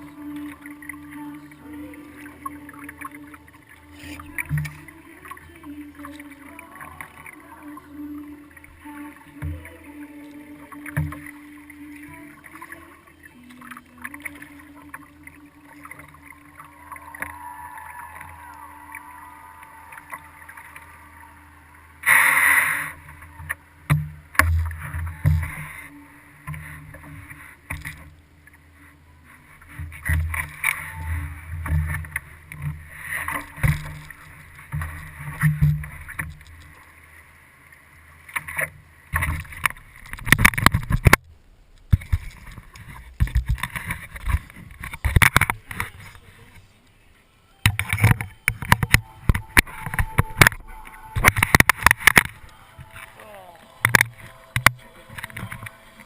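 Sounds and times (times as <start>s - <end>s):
water sloshing: 0.0s - 56.0s
sharp clicks and knocks: 38.4s - 46.0s.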